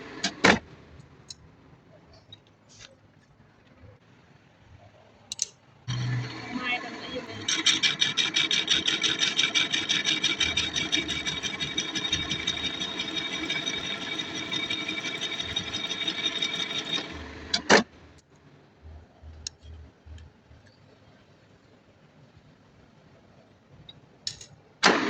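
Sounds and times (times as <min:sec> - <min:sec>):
machine running with high tone: 0:05.9 - 0:17.7.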